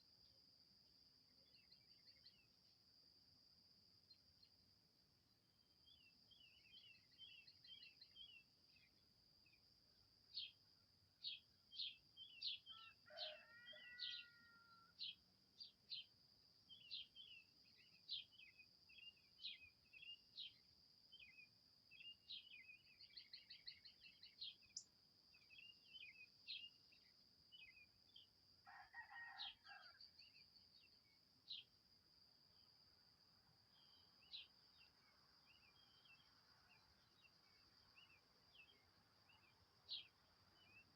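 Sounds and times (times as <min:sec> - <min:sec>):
insect drone: 0:00.0 - 0:40.9
longer lower bird calls: 0:11.7 - 0:15.1.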